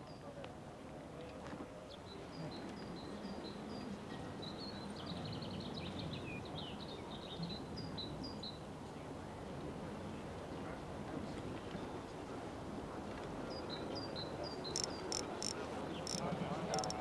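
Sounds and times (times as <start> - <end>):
small birds chirping: 14.0 - 17.0.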